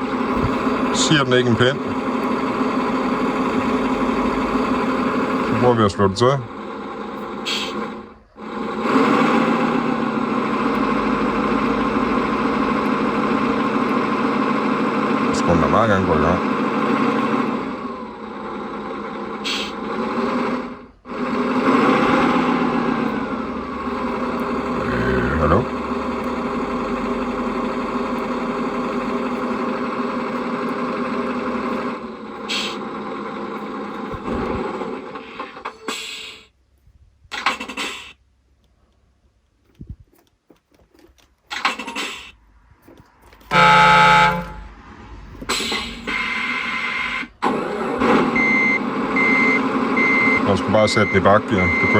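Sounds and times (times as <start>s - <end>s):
simulated diesel engine through speaker: 0.0s - 36.7s, 41.0s - 51.9s
truck horn from small speaker: 43.5s - 44.8s.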